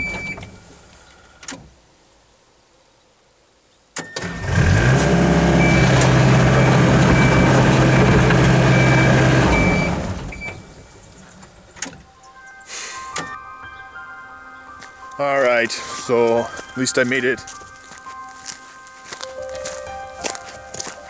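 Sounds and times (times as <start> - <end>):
diesel engine starting and running: 4.0 - 12.0.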